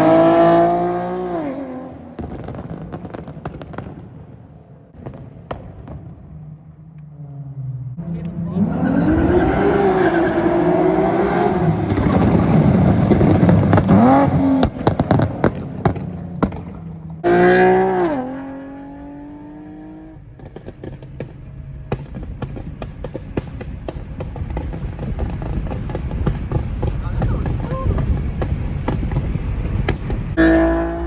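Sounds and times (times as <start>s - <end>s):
car engine revving: 0.0s - 2.8s, 6.6s - 31.0s
exhaust pops and crackles: 0.0s - 4.2s, 11.5s - 31.0s.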